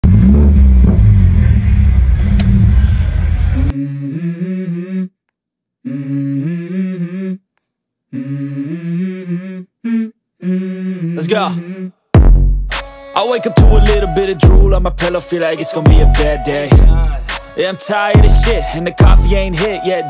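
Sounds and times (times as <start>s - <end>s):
deep car engine rumble: 0.0s - 3.7s
person humming a melody: 3.7s - 5.2s, 5.8s - 7.4s, 8.1s - 12.0s, 13.3s - 20.0s.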